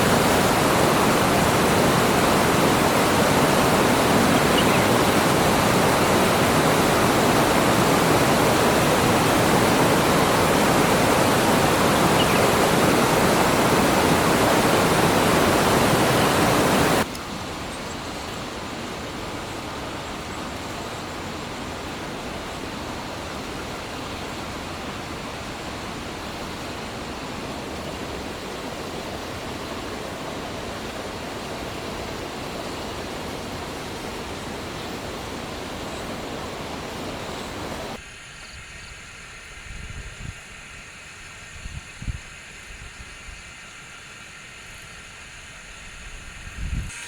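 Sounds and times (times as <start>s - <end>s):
steady rushing noise: 0.0s - 17.2s.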